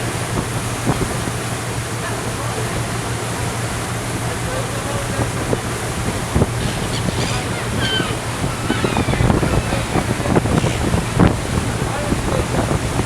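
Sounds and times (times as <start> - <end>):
ferry engine humming: 0.0 - 13.0
water rushing along hull: 0.0 - 13.0
wind buffeting microphone: 4.8 - 13.0
brief high cries: 6.6 - 10.8.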